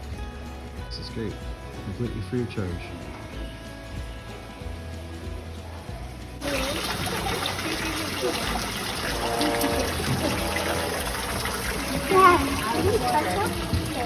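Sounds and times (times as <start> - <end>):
faint voices: 5.6 - 14.0
running splashing water: 6.0 - 14.0.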